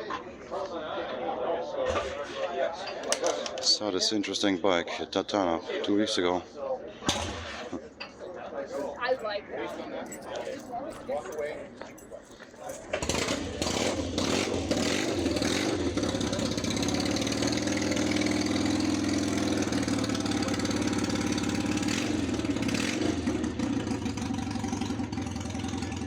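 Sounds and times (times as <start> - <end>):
motorcycle engine idling: 13.0 - 26.0.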